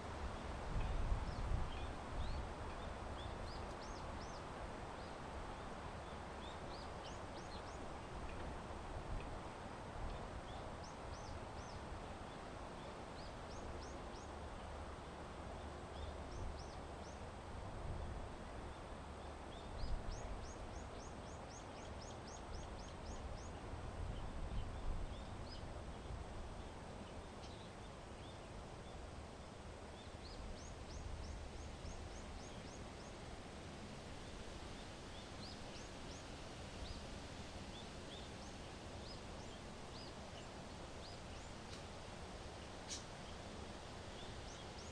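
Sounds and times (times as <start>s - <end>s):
wind rumbling on microphone: 0.0s - 20.8s, 22.5s - 27.4s
small birds chirping: 42.6s - 44.9s.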